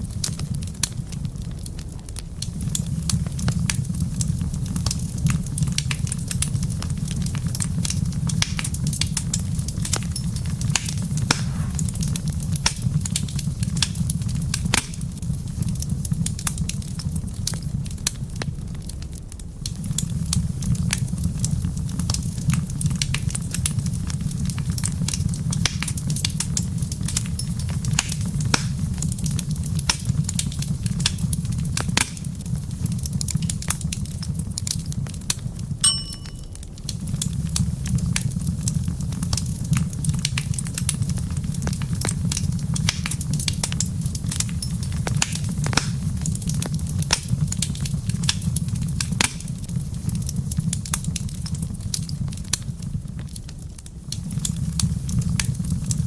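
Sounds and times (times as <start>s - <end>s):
wood fire crackling: 0.0s - 56.0s
brief ringing ping: 35.8s - 36.6s.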